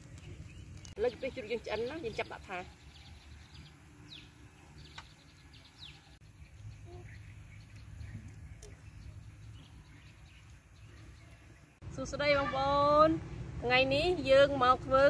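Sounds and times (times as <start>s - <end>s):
faint bird chirps: 0.0s - 11.8s.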